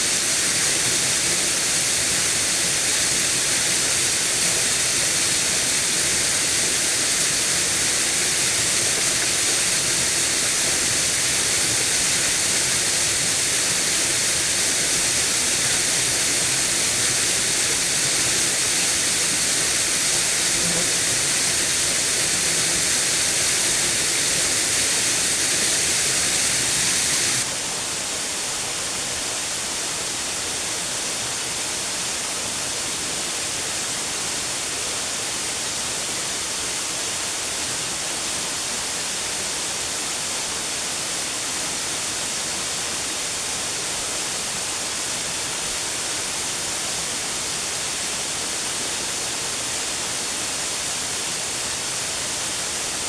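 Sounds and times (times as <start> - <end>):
waterfall rushing: 0.0 - 27.6.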